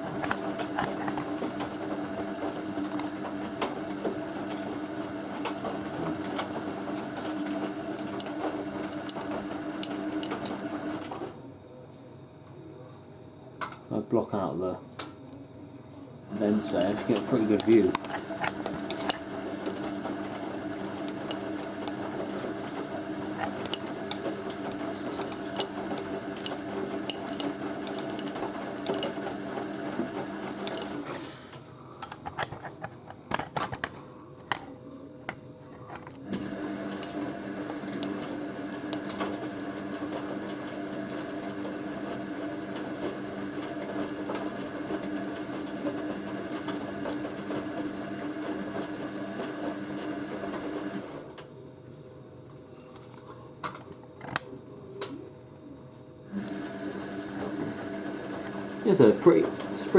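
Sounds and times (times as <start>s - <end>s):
washing machine motor humming: 0.0s - 11.4s, 16.2s - 32.3s, 35.3s - 51.7s, 56.2s - 59.9s.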